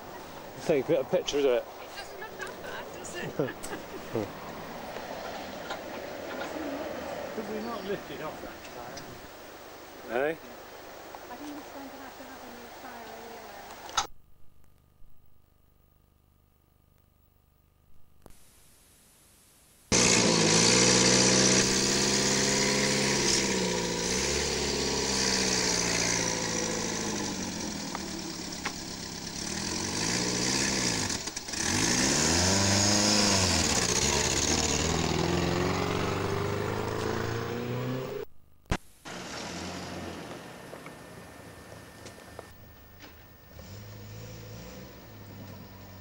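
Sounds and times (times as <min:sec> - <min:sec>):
tape hiss: 0:00.0 - 0:20.0, 0:38.1 - 0:46.0
sports car engine revving: 0:19.9 - 0:38.3, 0:43.4 - 0:46.0.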